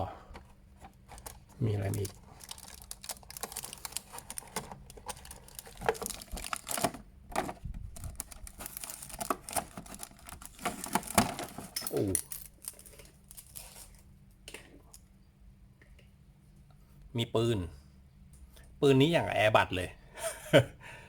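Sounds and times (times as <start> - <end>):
packaging crinkling and rustling: 0.8 - 14.1.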